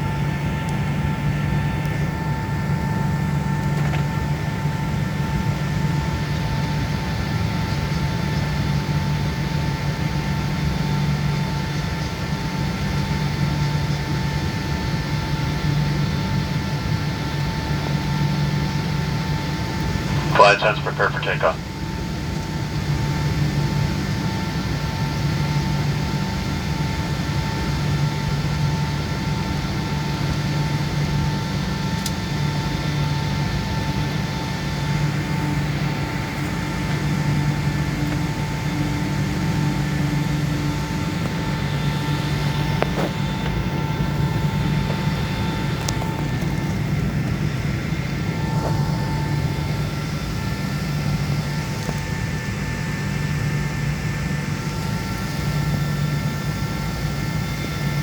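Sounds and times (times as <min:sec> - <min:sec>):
low hum of jet cabin: 0:17.0 - 0:22.0, 0:30.4 - 0:58.0.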